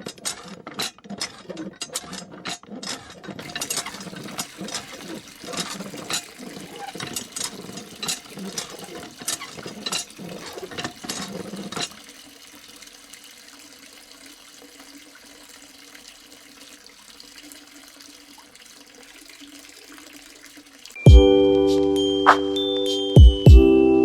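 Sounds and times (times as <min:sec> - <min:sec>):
pump clicks: 0:00.0 - 0:13.2
water splashing from hand pump: 0:00.0 - 0:21.0
water trickling: 0:03.3 - 0:23.2.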